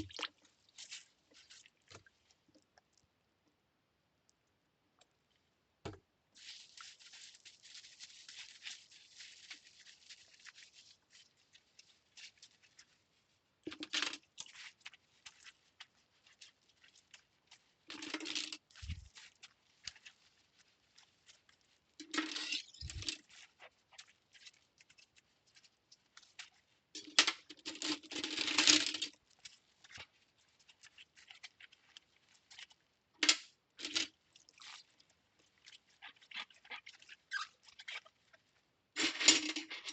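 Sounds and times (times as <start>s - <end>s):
soft hiss: 6.3s - 13.6s.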